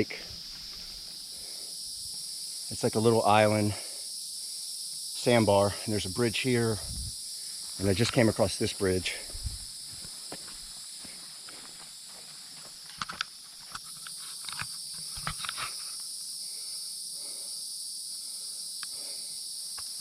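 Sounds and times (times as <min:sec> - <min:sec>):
insects buzzing: 0:00.0 - 0:20.0
clicks and rustles: 0:12.8 - 0:16.0.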